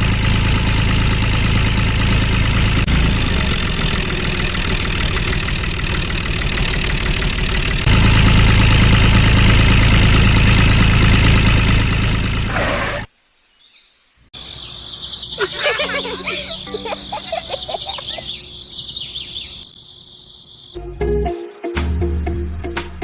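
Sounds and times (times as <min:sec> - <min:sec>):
model tractor motor running: 0:00.0 - 0:12.5.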